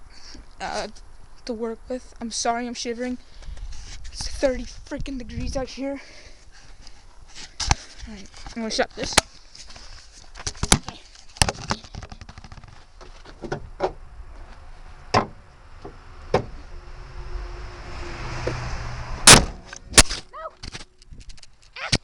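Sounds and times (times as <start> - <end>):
car hood clicks and knocks: 13.2 - 14.0, 15.1 - 16.6
car hood slamming shut: 15.1 - 15.4, 19.2 - 19.7.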